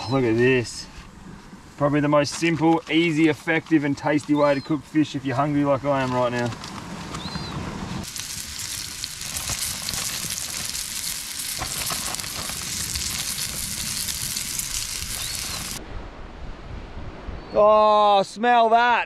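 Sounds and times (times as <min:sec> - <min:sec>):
fish frying in oil: 0:08.0 - 0:15.8.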